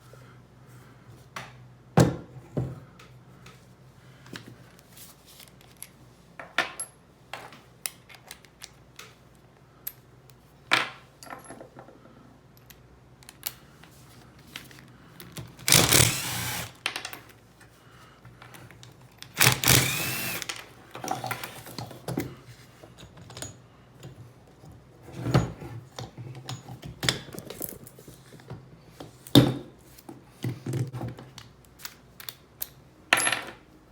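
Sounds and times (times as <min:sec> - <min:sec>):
power tool running: 0:15.6 - 0:16.8, 0:19.4 - 0:20.5.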